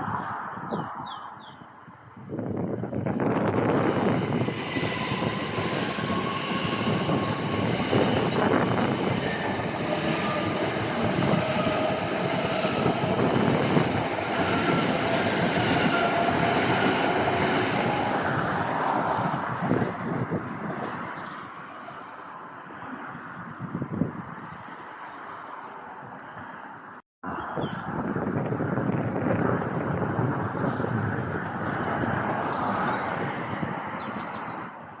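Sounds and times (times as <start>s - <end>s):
train rumble: 2.4s - 21.0s
train wheel squeal: 3.9s - 19.4s.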